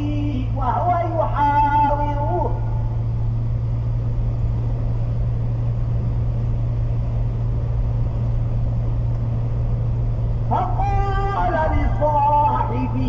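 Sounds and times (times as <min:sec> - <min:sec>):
vehicle engine drone: 0:00.0 - 0:13.0.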